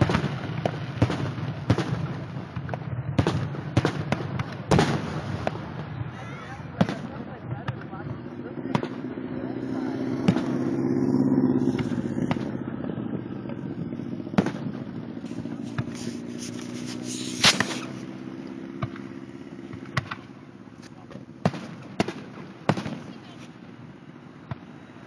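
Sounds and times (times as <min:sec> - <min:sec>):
fireworks booming: 0:00.0 - 0:20.3, 0:21.0 - 0:23.4
crackling hiss: 0:14.4 - 0:18.6.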